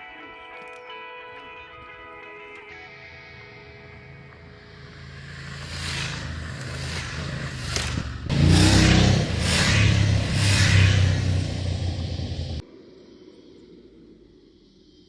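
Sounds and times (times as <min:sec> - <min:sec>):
motorcycle engine accelerating: 0:03.7 - 0:12.6
wind rushing: 0:05.0 - 0:12.6.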